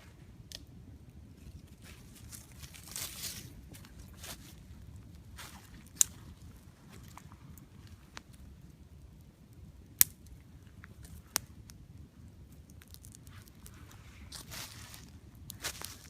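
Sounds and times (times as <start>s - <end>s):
campfire crackling: 0.0s - 16.0s
sharp pops of burning wood: 5.6s - 11.8s, 12.4s - 13.7s.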